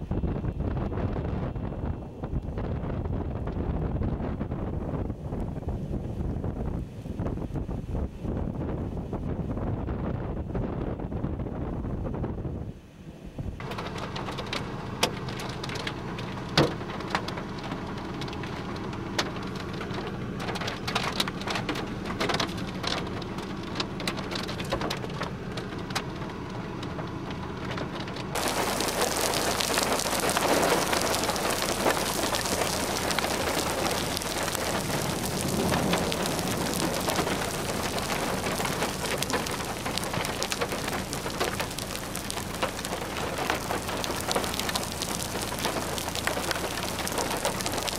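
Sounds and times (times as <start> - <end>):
rain falling: 13.6 - 47.9.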